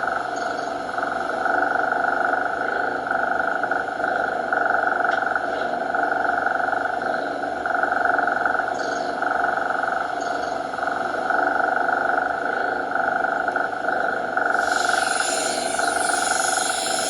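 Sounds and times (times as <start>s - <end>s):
background hiss: 14.5s - 17.0s.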